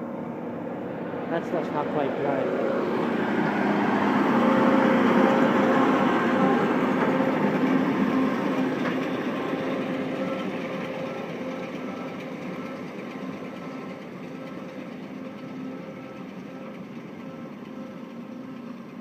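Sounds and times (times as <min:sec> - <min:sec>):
baler machinery running: 0:00.0 - 0:19.0
tractor engine drone: 0:00.0 - 0:19.0.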